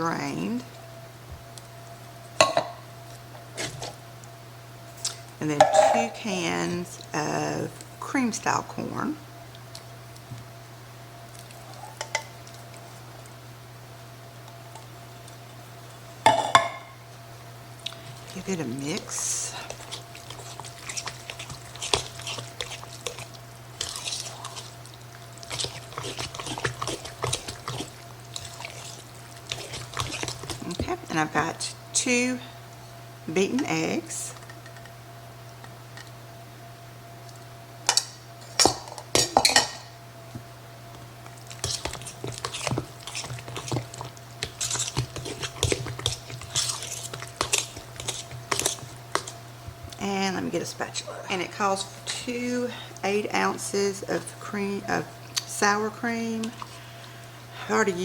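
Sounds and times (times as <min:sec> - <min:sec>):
steady low hum: 0:00.0 - 0:58.0
spoon scraping bowl: 0:05.5 - 0:06.2, 0:18.4 - 0:24.8, 0:25.5 - 0:30.8, 0:41.5 - 0:49.4
spoon stirring thick batter: 0:17.9 - 0:32.2, 0:41.3 - 0:55.1.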